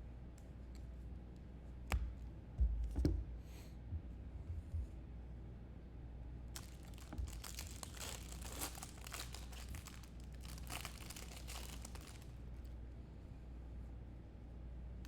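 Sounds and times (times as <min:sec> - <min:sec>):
plastic packaging crinkling: 0:06.6 - 0:12.7.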